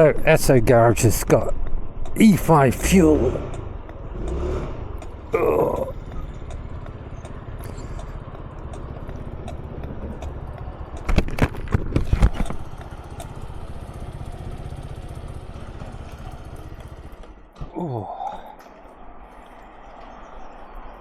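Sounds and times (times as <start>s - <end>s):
motor scooter engine running: 5.0s - 17.4s.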